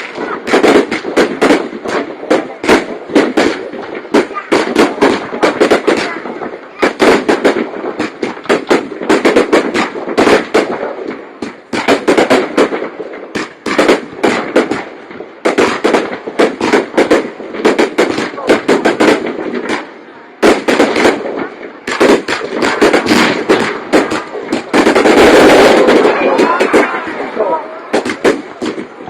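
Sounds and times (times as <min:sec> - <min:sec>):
crowd voices: 0:00.0 - 0:08.4, 0:14.9 - 0:29.0
fireworks bangs: 0:00.0 - 0:29.0.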